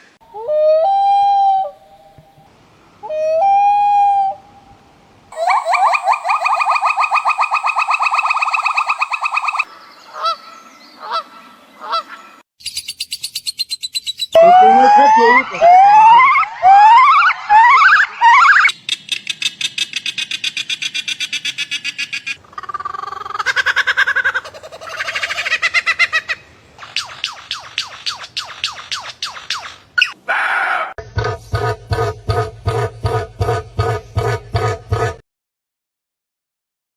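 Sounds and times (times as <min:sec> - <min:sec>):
downward whistled bird notes: 0:05.3 - 0:09.7
high-pitched pulsing bird call: 0:05.3 - 0:10.4, 0:12.6 - 0:19.0
rasping bird call: 0:05.3 - 0:10.4
bird fast trill: 0:05.4 - 0:09.7, 0:12.6 - 0:14.5, 0:26.8 - 0:30.2.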